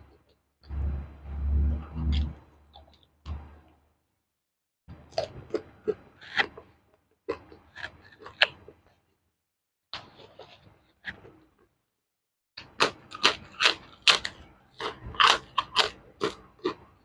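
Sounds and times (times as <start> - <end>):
chewing crunchy food: 4.9 - 9.1, 10.0 - 11.6, 12.6 - 17.0.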